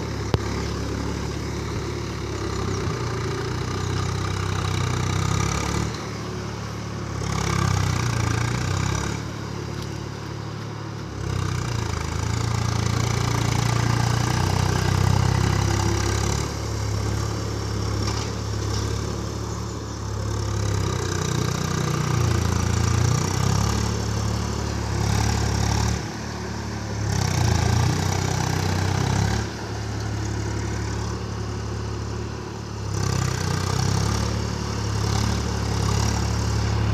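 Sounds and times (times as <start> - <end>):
tractor diesel engine running: 0.0 - 36.9.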